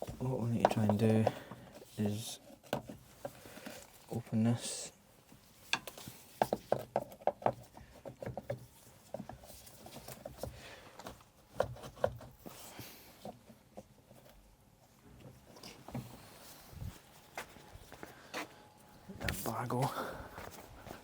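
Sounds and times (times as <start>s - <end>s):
tools clicking and knocking on metal: 0.5s - 1.6s.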